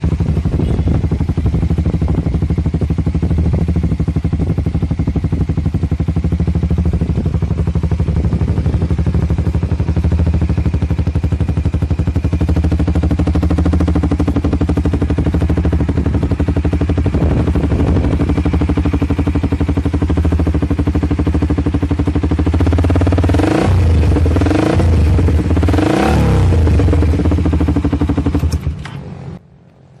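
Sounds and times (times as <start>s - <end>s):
motorcycle throttle blips: 0.0s - 29.8s
motorcycle idling: 0.0s - 30.0s.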